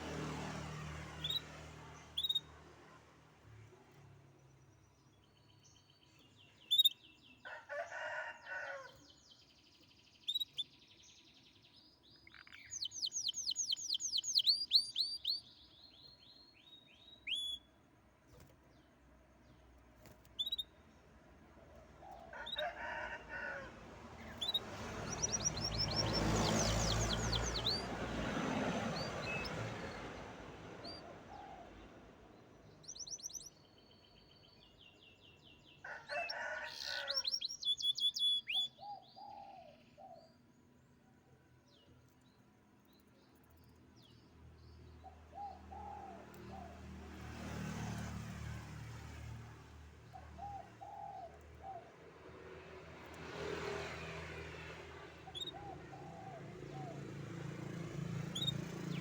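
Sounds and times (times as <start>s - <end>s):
canary singing trills: 1.2s - 2.6s, 5.2s - 7.3s, 9.9s - 17.8s, 20.0s - 20.8s, 24.2s - 28.0s, 28.8s - 30.0s, 32.7s - 34.9s, 36.2s - 40.5s, 55.2s - 57.2s, 58.2s - 59.0s
rooster crowing: 7.4s - 9.0s, 22.2s - 24.0s, 35.8s - 37.5s.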